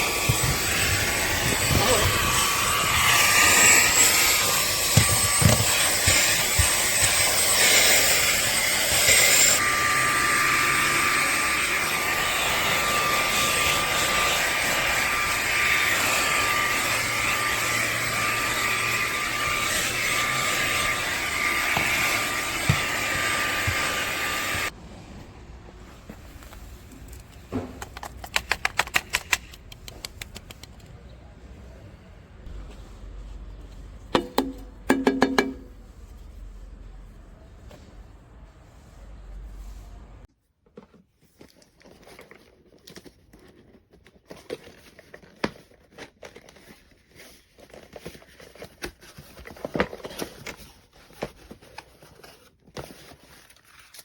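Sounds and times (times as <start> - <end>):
handheld vacuum cleaner whining: 0.0 - 24.8.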